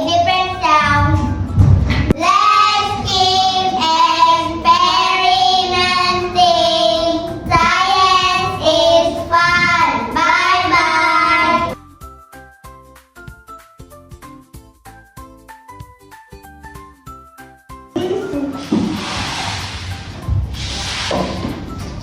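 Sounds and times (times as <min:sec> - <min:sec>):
child singing: 0:00.0 - 0:01.4, 0:02.2 - 0:11.8.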